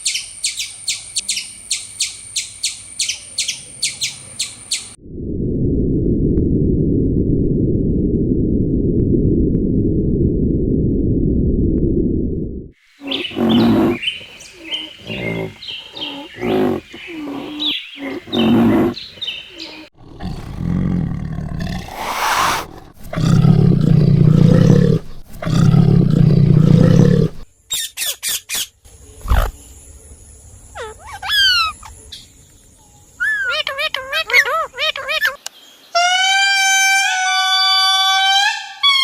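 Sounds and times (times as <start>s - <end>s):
animal calls: 13.0s - 27.4s.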